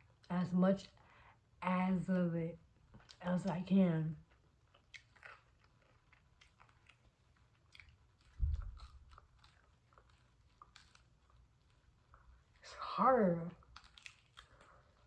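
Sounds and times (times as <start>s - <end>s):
chewing hard pizza crust: 4.2s - 15.0s
low thump: 8.4s - 8.8s.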